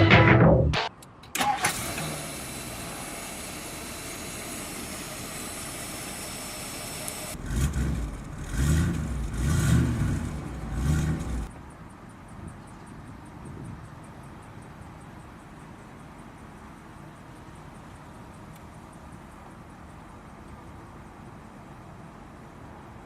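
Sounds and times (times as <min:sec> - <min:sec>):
car engine starting and idling: 0:00.3 - 0:12.0
engine revving: 0:00.8 - 0:11.5.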